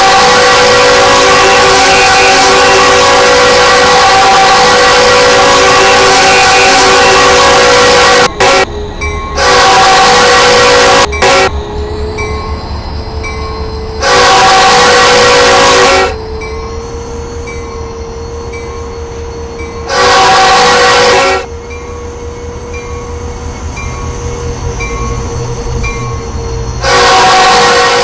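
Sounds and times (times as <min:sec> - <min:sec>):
locomotive horn blasts: 0:00.0 - 0:12.2, 0:13.9 - 0:17.8, 0:19.1 - 0:22.7, 0:26.8 - 0:28.0
train rumble: 0:00.0 - 0:28.0.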